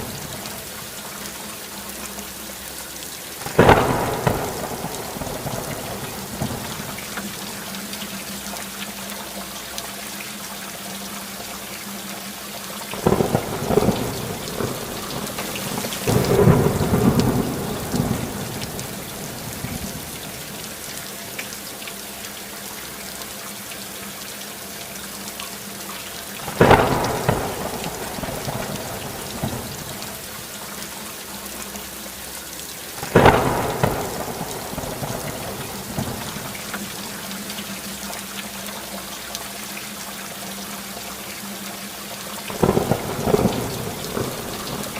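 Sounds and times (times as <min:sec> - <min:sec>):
heavy rain hissing: 0:00.0 - 0:44.9
thunder cracking and rumbling: 0:03.4 - 0:07.2, 0:12.9 - 0:20.8, 0:26.5 - 0:30.2, 0:33.0 - 0:37.0, 0:42.5 - 0:44.9.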